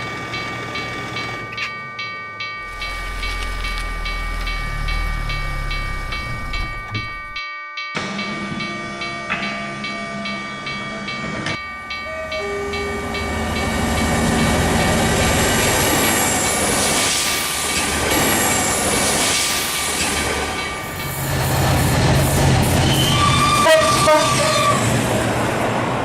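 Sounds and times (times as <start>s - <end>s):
train rail rumble and rattle: 0.0s - 26.0s
regular ticking: 0.3s - 7.4s
steady tones: 0.4s - 7.5s.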